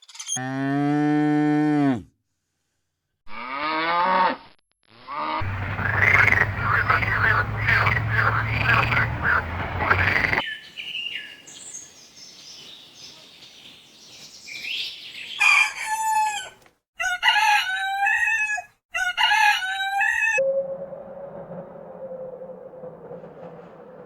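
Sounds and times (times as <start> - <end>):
rooster crowing: 15.4 - 24.0.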